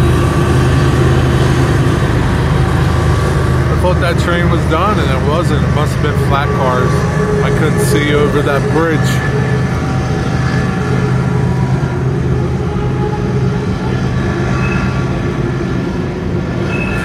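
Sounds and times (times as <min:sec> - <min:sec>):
freight train rumbling over bridge: 0:00.0 - 0:17.0.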